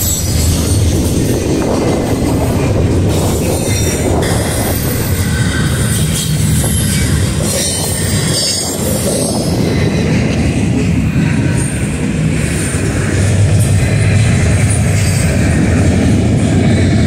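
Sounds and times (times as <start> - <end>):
steel wheels rumbling on rail: 0.0 - 17.0
high-pitched wheel squeal: 3.4 - 9.4.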